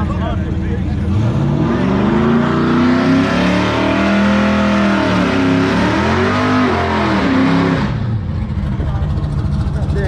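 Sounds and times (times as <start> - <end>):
car engine at full throttle: 0.0 - 10.0.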